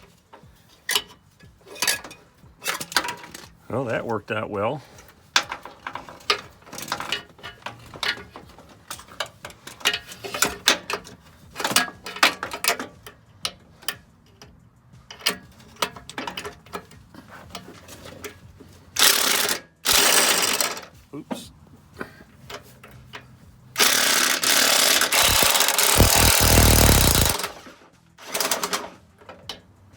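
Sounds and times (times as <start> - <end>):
impact wrench running: 19.0 - 20.8, 23.8 - 27.6.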